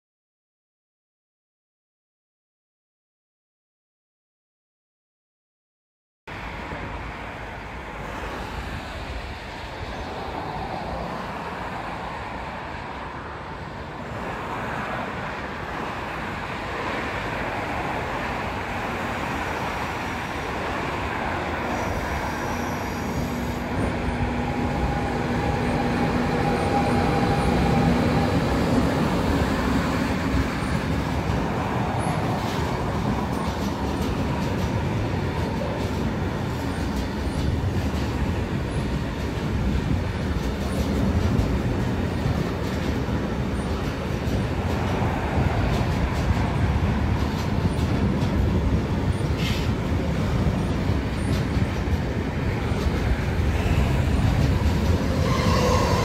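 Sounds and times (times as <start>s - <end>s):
freight train passing: 6.3s - 56.0s.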